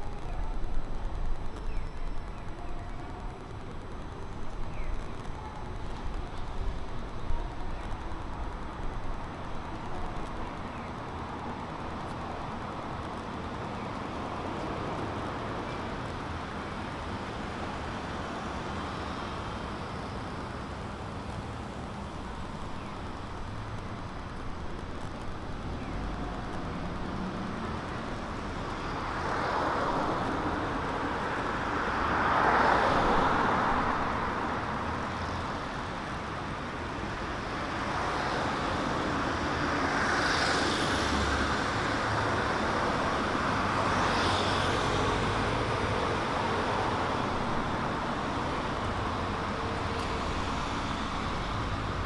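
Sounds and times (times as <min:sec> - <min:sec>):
cars passing: 0:21.6 - 0:52.0.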